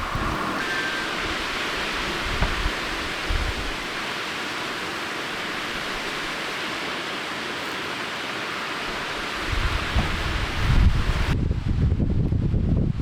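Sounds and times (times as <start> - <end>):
wind buffeting microphone: 0.0 - 3.9, 9.4 - 13.0
waterfall rushing: 0.0 - 11.3.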